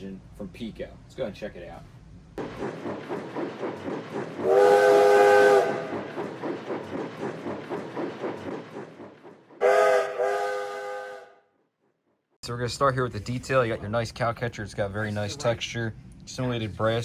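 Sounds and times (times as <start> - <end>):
steam locomotive chuffing: 2.4 - 11.4
steam whistle blasts: 4.4 - 6.1, 9.6 - 11.5.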